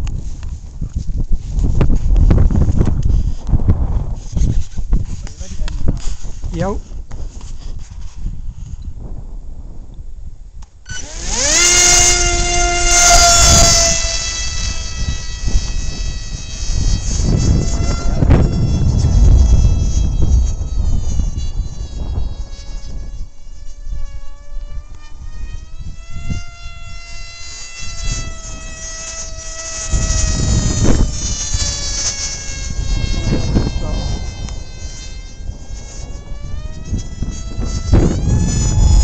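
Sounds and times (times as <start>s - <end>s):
wind rumbling on microphone: 0.0s - 39.0s
model plane motor whining: 10.6s - 39.0s.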